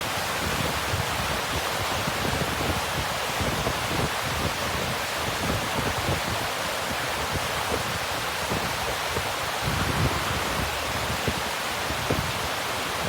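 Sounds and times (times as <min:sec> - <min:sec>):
stream and waterfall rushing: 0:00.0 - 0:13.0.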